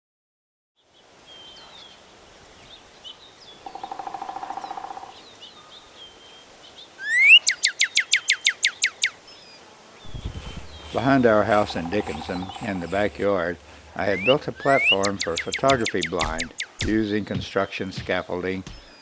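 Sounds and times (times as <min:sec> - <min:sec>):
woodpecker calling: 0:03.6 - 0:05.2, 0:07.0 - 0:09.2, 0:10.1 - 0:19.0
small birds chirping: 0:06.8 - 0:09.2, 0:10.1 - 0:19.0
buzzy bird trill: 0:07.0 - 0:09.2, 0:10.1 - 0:17.2.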